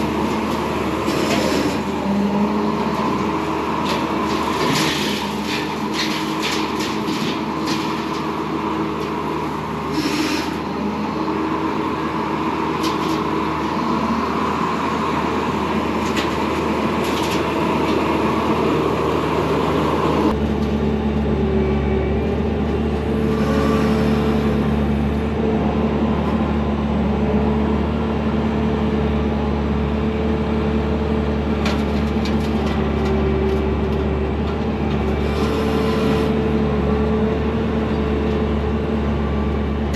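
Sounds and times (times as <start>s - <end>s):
brush mower: 0.0s - 11.0s, 23.0s - 25.1s, 35.0s - 36.5s
diesel engine running under load: 0.0s - 39.9s.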